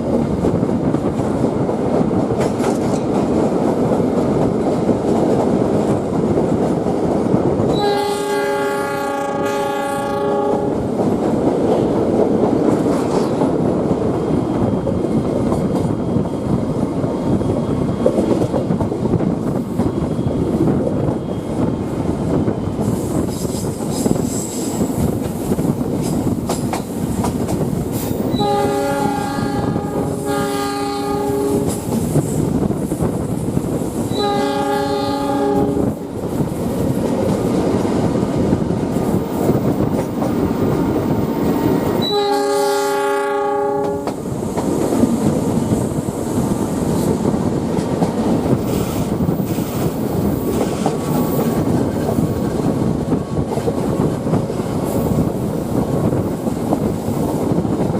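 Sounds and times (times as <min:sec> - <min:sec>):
train wheels clattering on rails: 0:00.0 - 0:08.3, 0:10.4 - 0:42.5, 0:43.7 - 0:57.9
locomotive horn blasts: 0:07.7 - 0:10.8, 0:28.3 - 0:31.8, 0:34.1 - 0:35.9, 0:42.0 - 0:44.2.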